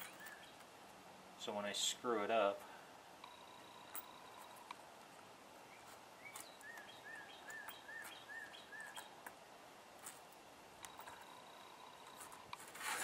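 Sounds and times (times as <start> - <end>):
bird chirping: 0.0 - 0.7, 5.6 - 9.2
metal snap fasteners clicking on wood: 6.3 - 9.4.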